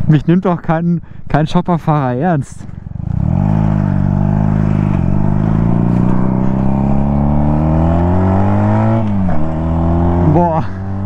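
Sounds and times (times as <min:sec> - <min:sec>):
motorcycle engine accelerating: 0:02.6 - 0:11.0.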